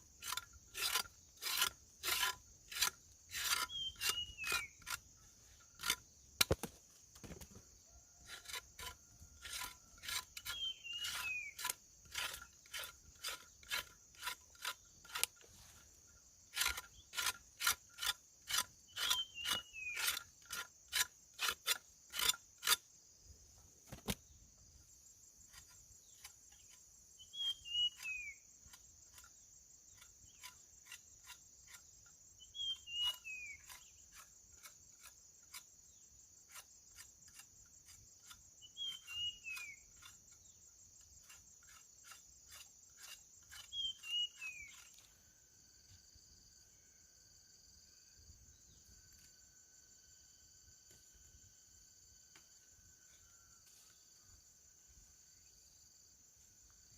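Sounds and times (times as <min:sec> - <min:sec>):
insects chirring: 0:00.0 - 0:56.9.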